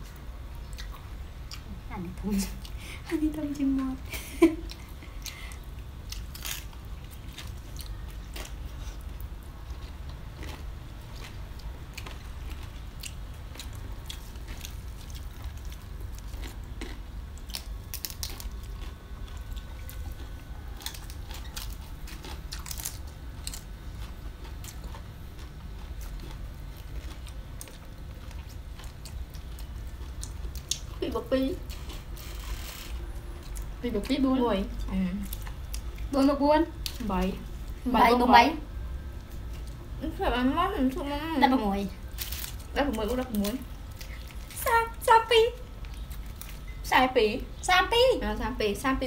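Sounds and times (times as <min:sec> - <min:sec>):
low steady hum: 0:00.0 - 0:49.0
crisp chewing and biting: 0:04.6 - 0:34.1, 0:41.9 - 0:45.0, 0:45.6 - 0:46.8.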